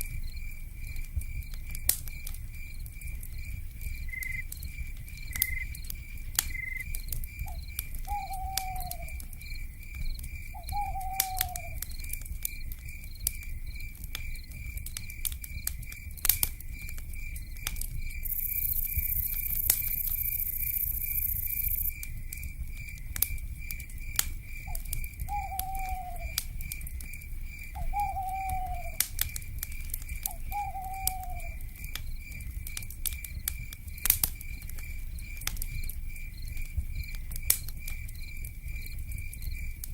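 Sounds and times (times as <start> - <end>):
insect chirping: 0.0 - 39.9
wood fire crackling: 0.0 - 39.9
owl calling: 8.0 - 9.2, 10.6 - 11.8, 24.7 - 26.4, 27.8 - 29.0, 30.3 - 31.6.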